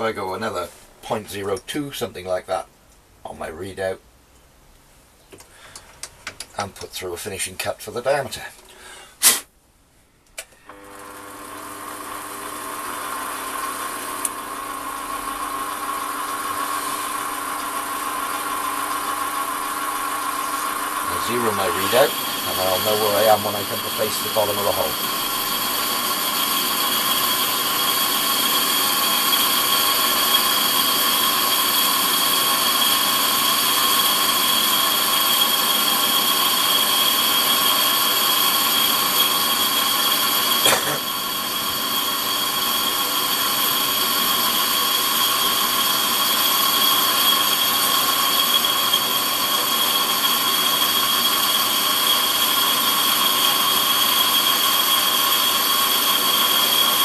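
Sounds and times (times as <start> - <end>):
metal lathe running: 11.4 - 57.0
high-pitched whine: 20.5 - 57.0.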